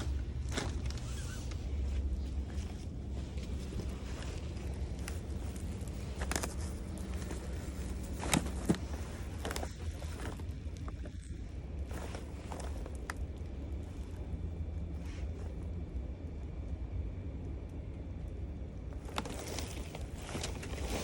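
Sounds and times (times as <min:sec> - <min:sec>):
footsteps: 0:00.0 - 0:13.2, 0:19.0 - 0:21.0
low rumble: 0:00.0 - 0:21.0.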